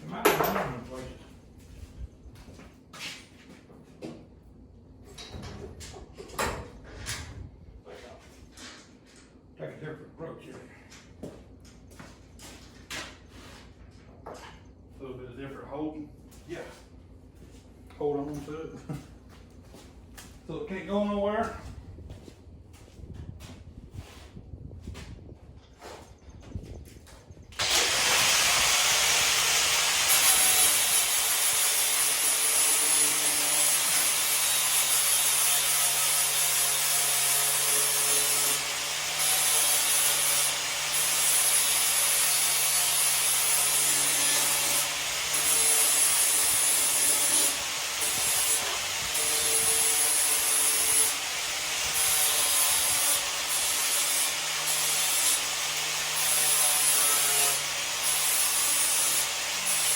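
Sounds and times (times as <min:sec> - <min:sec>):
power tool working on metal: 0:27.6 - 0:59.9.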